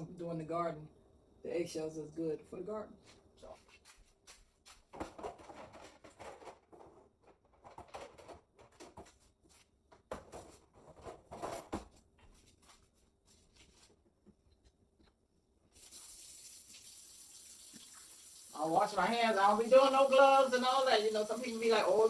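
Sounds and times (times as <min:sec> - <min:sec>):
water running into sink: 0:15.7 - 0:22.0.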